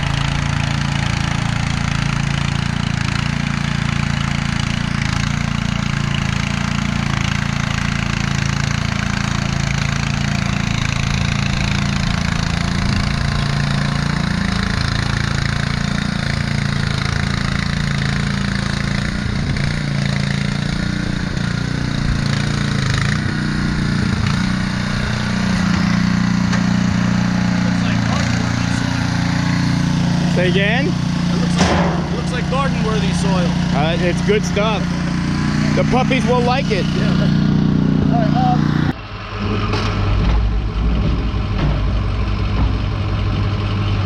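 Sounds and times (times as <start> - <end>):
tracked machine engine running: 0.0 - 44.0.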